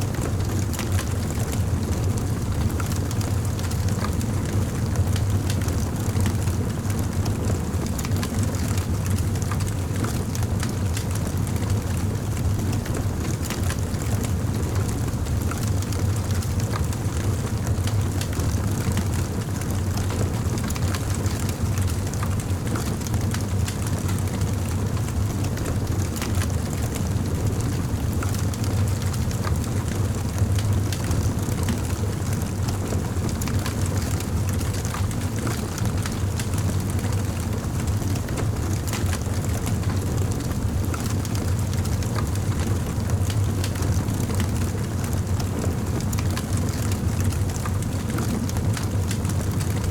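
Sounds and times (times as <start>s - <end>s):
low fire rumble: 0.0s - 49.9s
campfire crackling and popping: 43.1s - 43.8s.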